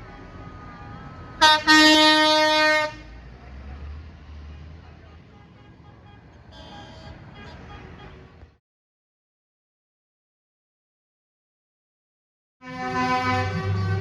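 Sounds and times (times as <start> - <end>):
heavy engine rumbling past: 0.0 - 5.3, 12.6 - 14.0
vehicle horn blast: 0.1 - 3.1, 5.3 - 8.2, 12.6 - 14.0
faint horn: 12.6 - 14.0.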